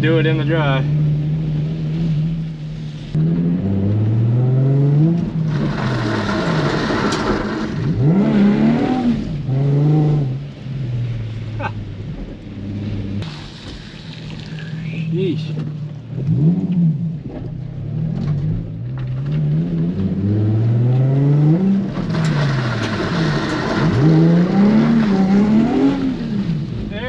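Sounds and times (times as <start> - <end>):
car engine revving: 0.0 - 27.0
hissing tyre spray: 13.2 - 15.2.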